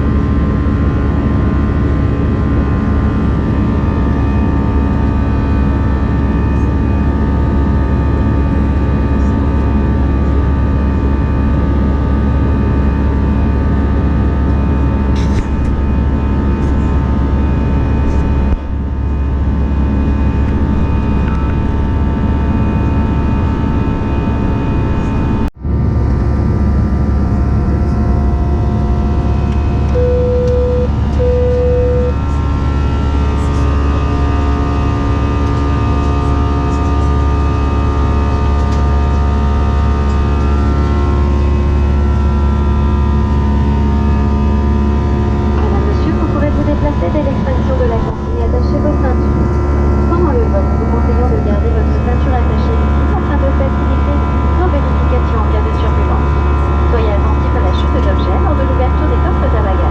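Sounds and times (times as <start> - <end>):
aircraft cabin engine rumble: 0.0 - 59.9
short beeps: 29.9 - 32.2.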